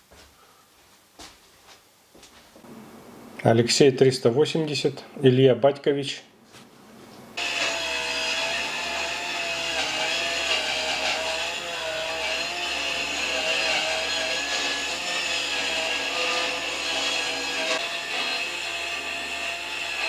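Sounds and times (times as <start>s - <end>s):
power saw cutting wood: 7.4s - 20.0s.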